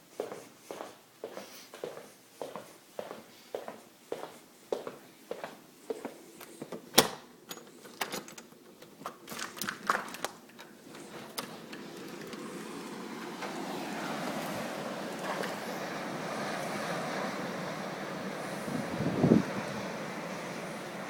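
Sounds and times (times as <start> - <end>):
blizzard wind on microphone: 11.5 - 21.0.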